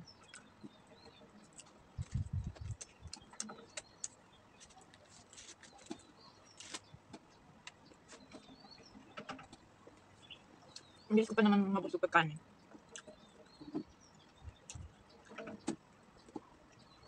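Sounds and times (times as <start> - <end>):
chewing crispy food: 0.1 - 8.4
crisp clicks and crunches: 1.4 - 6.9.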